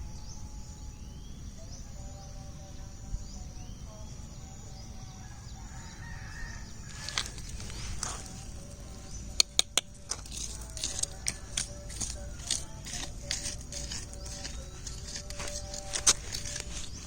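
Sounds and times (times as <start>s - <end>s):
high insect buzz: 0.0s - 17.0s
small birds chirping: 0.0s - 17.0s
rooster crowing: 5.1s - 9.2s, 10.6s - 17.0s.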